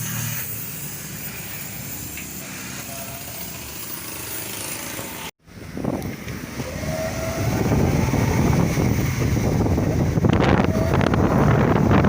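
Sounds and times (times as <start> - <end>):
vehicle humming on road: 0.0 - 12.0
wind buffeting microphone: 5.4 - 12.0.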